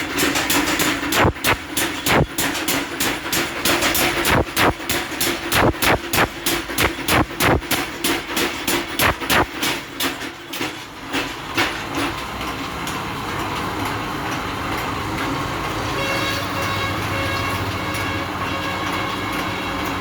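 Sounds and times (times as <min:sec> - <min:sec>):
machine running noise: 0:00.0 - 0:20.0
power hammer striking: 0:00.8 - 0:09.9.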